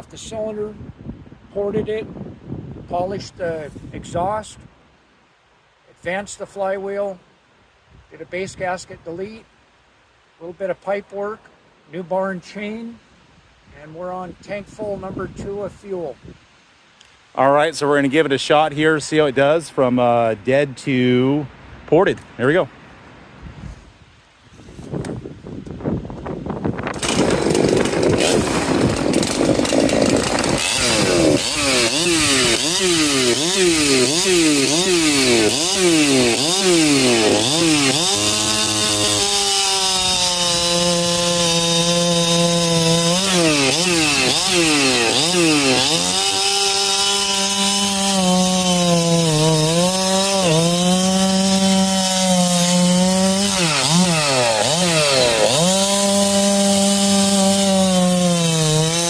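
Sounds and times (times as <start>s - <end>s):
chainsaw cutting wood: 26.8s - 59.0s.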